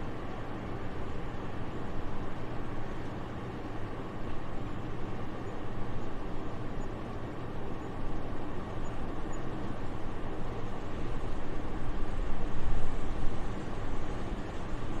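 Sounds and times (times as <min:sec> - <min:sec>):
soft wind: 0:00.0 - 0:15.0.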